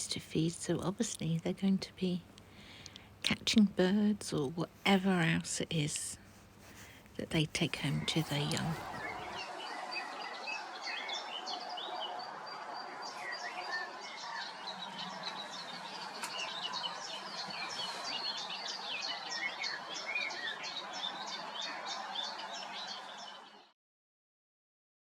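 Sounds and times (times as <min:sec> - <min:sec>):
small birds singing: 0:06.7 - 0:23.7.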